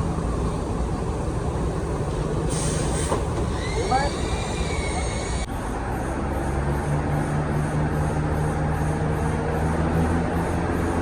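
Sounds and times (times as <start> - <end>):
diesel engine idling: 0.0 - 11.0
short hiss: 2.5 - 3.8.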